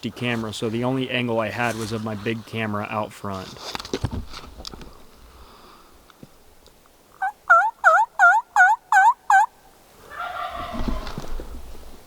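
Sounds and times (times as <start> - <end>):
turkey call yelps: 7.2 - 9.5, 10.1 - 11.0.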